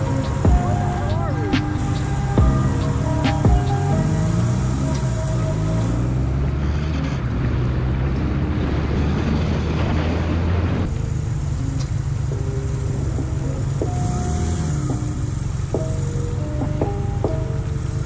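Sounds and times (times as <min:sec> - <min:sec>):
short musical notes: 0:00.0 - 0:06.4
vehicle engine and road noise: 0:00.0 - 0:18.0.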